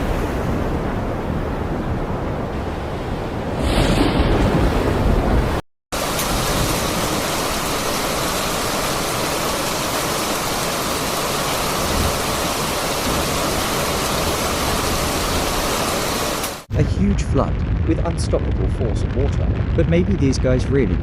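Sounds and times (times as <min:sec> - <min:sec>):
wind: 0:00.0 - 0:21.0
fast-flowing floodwater rushing: 0:06.0 - 0:16.6.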